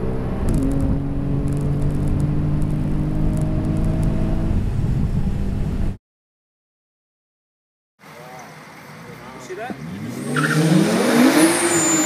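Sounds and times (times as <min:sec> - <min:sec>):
car engine at full throttle: 0:00.0 - 0:06.0, 0:09.8 - 0:12.0.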